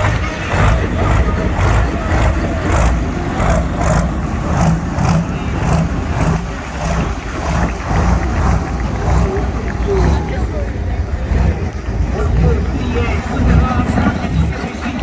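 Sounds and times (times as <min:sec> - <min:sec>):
tractor engine pulsing: 0:00.0 - 0:15.0.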